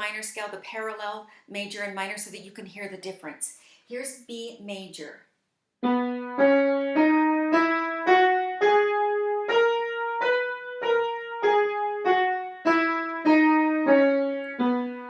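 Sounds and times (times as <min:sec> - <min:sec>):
piano playing a scale: 0:05.8 - 0:15.0.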